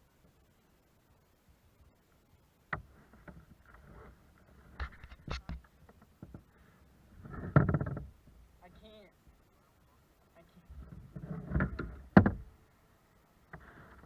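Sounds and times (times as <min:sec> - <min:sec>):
knocks and clatters on kayak: 0:02.7 - 0:06.5, 0:07.1 - 0:08.4, 0:10.7 - 0:12.6.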